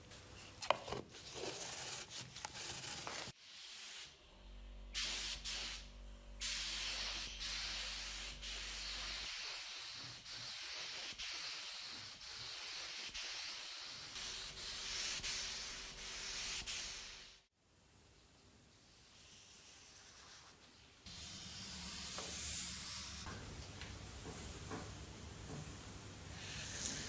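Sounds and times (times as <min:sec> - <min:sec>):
abrasive sanding hiss: 0:04.9 - 0:17.5, 0:21.1 - 0:23.3.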